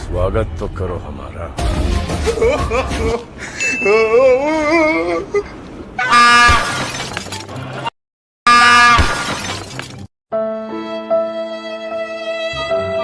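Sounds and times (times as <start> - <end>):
train horn blasts: 6.1 - 6.6, 8.5 - 9.2.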